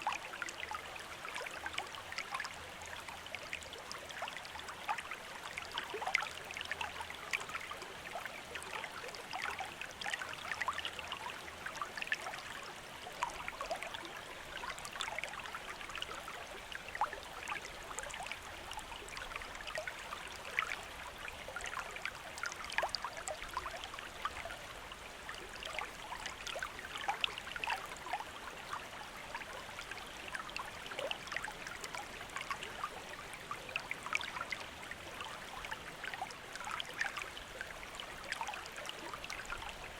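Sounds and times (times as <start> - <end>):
small splashes and trickles: 0.0 - 39.9
stream running: 0.0 - 39.9.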